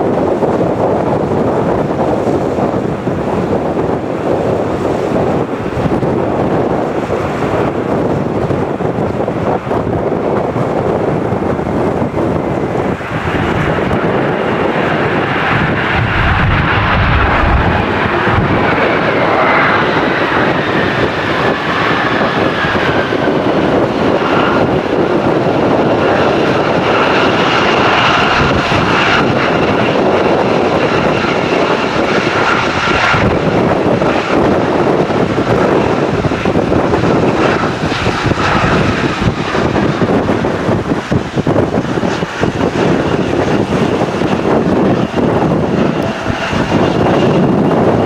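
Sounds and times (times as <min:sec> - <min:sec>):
jet airliner engine roar: 0:00.0 - 0:48.0
engine whine sliding down: 0:12.5 - 0:23.6.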